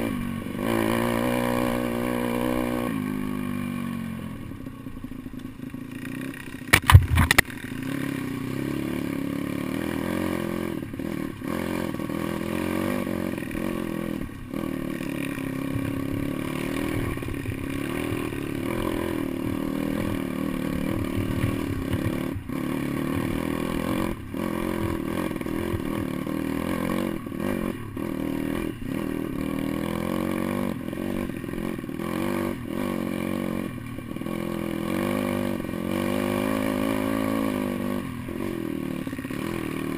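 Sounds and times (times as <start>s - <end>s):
motorbike engine running: 0.0s - 39.9s
sharp loud knocks: 6.7s - 7.5s.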